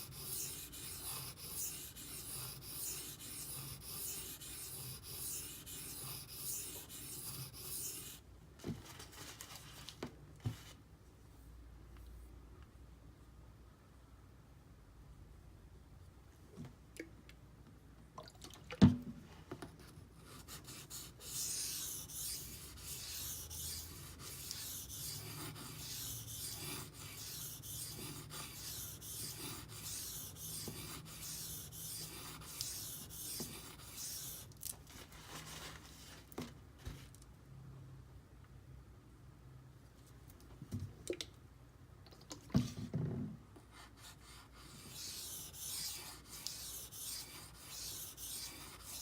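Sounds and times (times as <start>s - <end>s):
knife scraping on wet whetstone: 0.0s - 8.2s, 44.7s - 49.0s.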